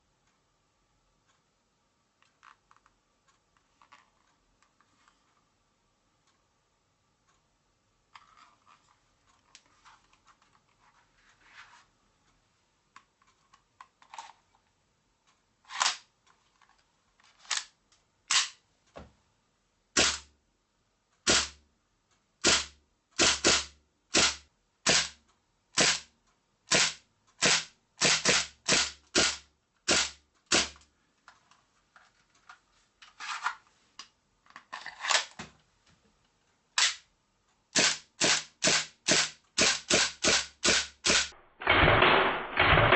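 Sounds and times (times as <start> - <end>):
pistol handling clicks: 18.3 - 18.6
airsoft pistol shots: 20.0 - 20.3, 21.3 - 21.6, 22.4 - 25.2, 25.8 - 26.0, 26.7 - 30.8, 37.8 - 42.9.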